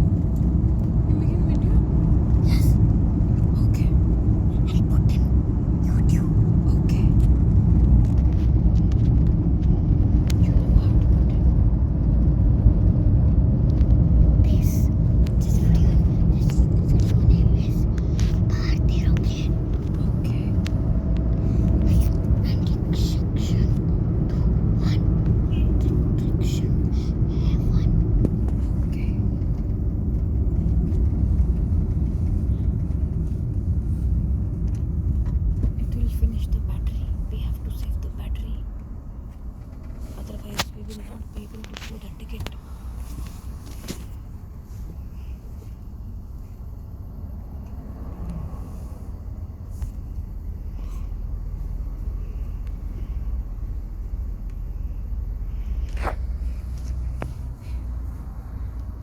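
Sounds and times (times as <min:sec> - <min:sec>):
vehicle cabin rumble: 0:00.0 - 0:59.0.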